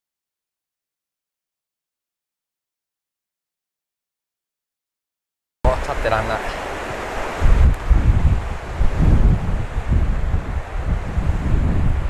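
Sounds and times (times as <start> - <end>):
steady hiss of wind: 5.7 - 12.0
wind buffeting microphone: 5.7 - 12.0.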